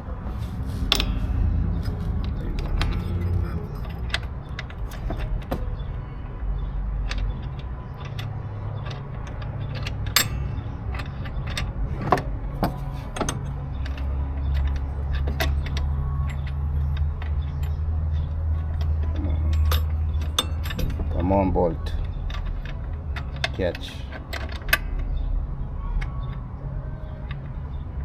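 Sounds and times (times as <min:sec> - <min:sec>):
steady low hum: 0:00.0 - 0:15.1
metallic clicks of bolt and tools: 0:00.9 - 0:02.9, 0:07.0 - 0:21.2.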